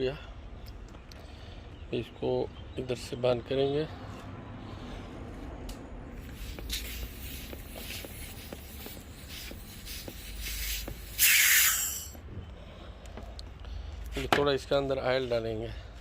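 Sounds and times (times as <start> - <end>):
hoses and fittings rubbing: 6.2 - 12.2
short hiss of air: 6.2 - 12.2.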